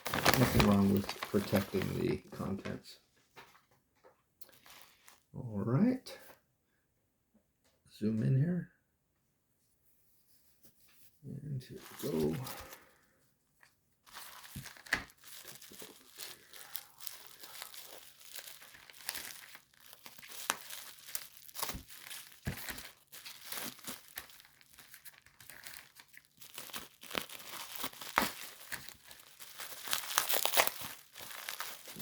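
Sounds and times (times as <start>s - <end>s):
packaging crinkling and tearing: 0.0s - 2.6s, 4.4s - 5.2s, 11.8s - 13.0s, 14.1s - 32.0s.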